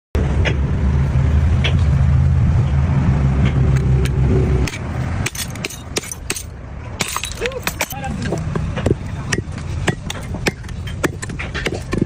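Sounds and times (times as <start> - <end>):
loud low rumble: 0.2 - 5.3.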